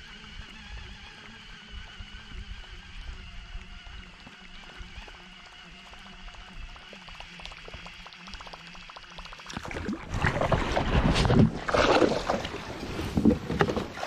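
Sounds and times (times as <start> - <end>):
water splashing and sloshing: 4.1 - 14.0.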